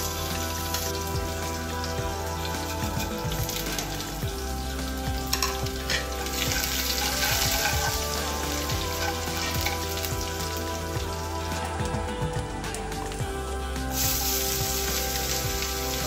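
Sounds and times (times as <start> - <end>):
food sizzling in hot oil: 0.0 - 16.0
metal spoon scraping pan: 5.4 - 9.9.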